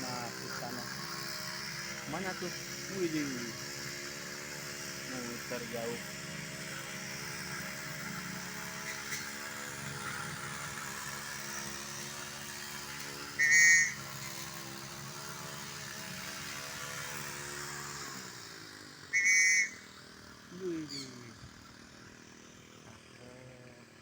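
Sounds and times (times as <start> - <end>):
engine idling: 0.0 - 17.2, 18.1 - 24.0
high-pitched tones: 13.4 - 14.0.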